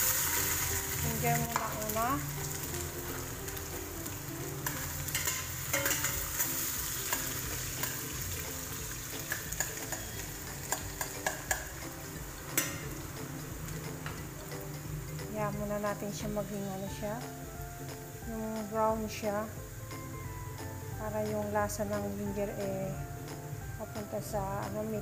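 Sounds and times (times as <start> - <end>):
ginger sizzling in oil: 0.0 - 25.0
utensil clicking against pan: 4.6 - 6.4, 7.1 - 8.0, 9.2 - 11.8, 12.5 - 12.8.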